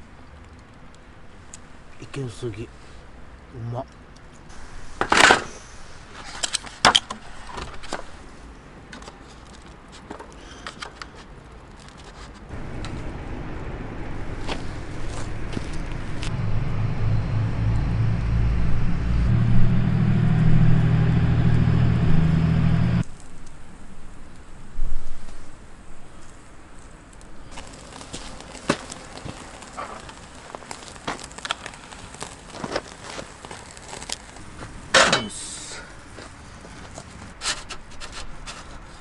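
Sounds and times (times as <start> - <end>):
passing vehicle engine hum: 12.5 - 23.0.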